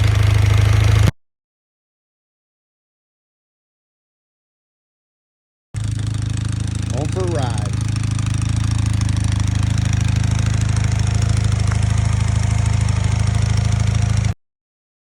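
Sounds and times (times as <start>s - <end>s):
motorcycle engine idling: 0.0s - 1.1s, 5.8s - 14.4s.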